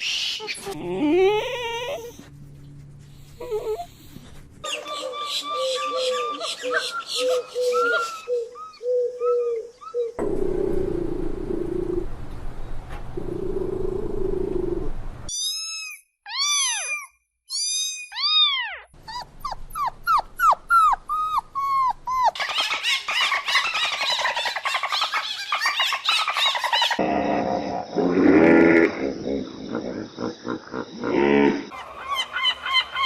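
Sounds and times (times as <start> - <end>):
high arching animal squeals: 0.0 - 2.2, 15.3 - 19.3
steady low drone: 10.2 - 15.3.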